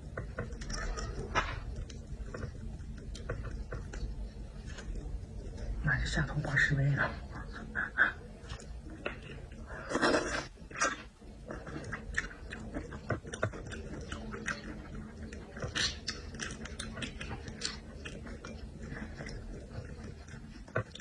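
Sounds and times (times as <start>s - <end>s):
person chewing with mouth sounds: 7.1s - 21.0s.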